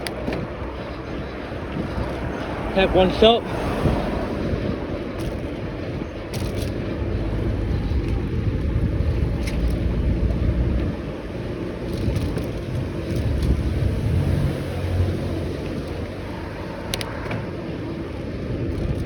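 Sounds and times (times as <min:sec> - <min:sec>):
vehicle engine rumbling: 0:00.0 - 0:19.0
wind buffeting microphone: 0:00.0 - 0:19.0.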